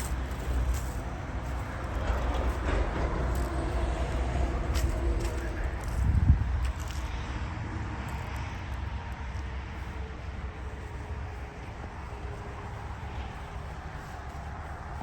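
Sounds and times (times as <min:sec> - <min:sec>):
vehicle rumble: 0:00.0 - 0:15.0
faint steady tones: 0:08.8 - 0:15.0.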